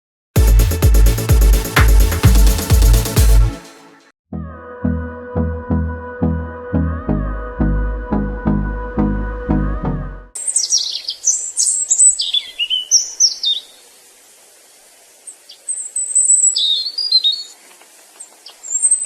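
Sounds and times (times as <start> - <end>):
background music with steady beat: 0.4 - 4.1
songbird chirping: 10.4 - 19.0.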